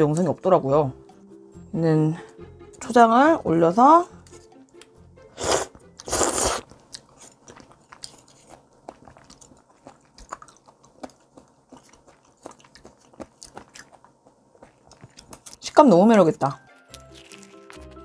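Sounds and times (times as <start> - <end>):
loud slurp: 5.4 - 6.7.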